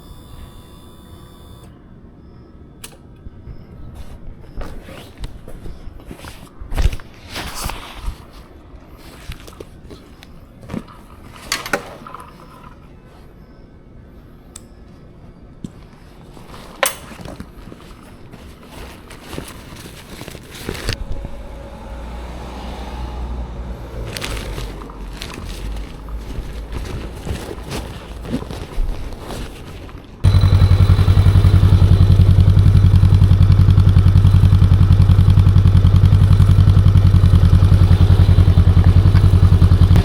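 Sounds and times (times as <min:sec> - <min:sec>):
motorcycle engine starting and idling: 0:20.1 - 0:40.0
gear clicking and knocking: 0:24.0 - 0:40.0.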